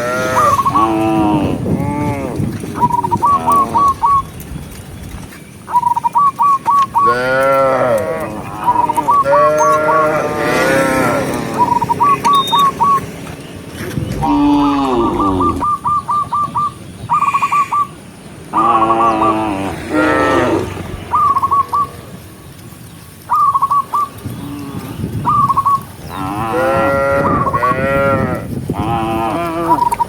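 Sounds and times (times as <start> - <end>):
cows mooing: 0.0 - 4.0, 7.0 - 12.4, 13.9 - 15.7, 18.6 - 20.9, 26.1 - 30.0.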